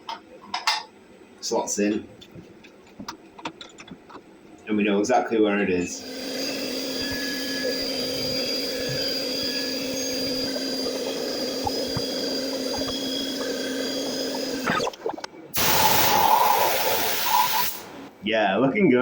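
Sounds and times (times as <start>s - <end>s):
cnc mill humming with high whine: 5.8s - 14.8s
loud hiss: 15.6s - 18.2s.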